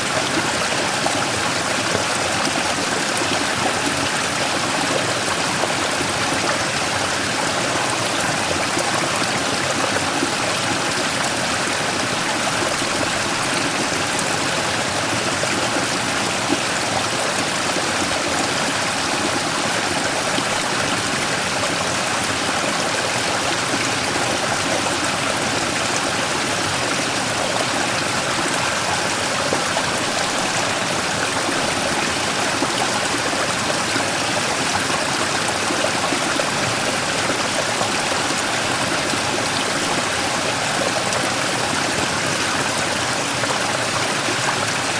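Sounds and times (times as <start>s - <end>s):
stream pouring over rock: 0.0s - 44.9s.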